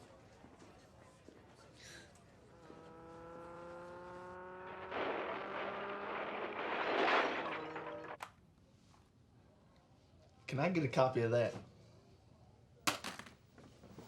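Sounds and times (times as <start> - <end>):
car engine rising in pitch: 2.4 - 8.2.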